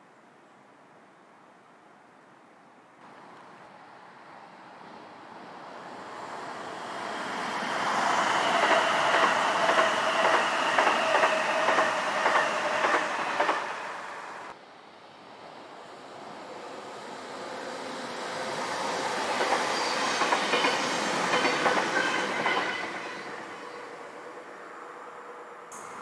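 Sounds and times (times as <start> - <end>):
train whine: 5.4 - 14.6, 15.5 - 26.0
train wheels clattering over track: 8.4 - 13.9, 19.4 - 23.0.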